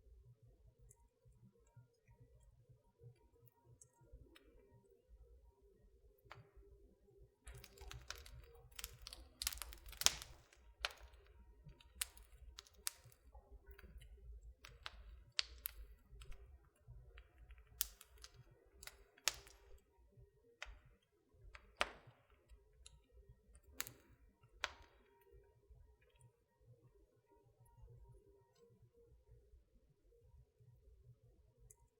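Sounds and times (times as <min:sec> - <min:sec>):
wood fire crackling: 0:07.5 - 0:20.0, 0:20.6 - 0:25.2.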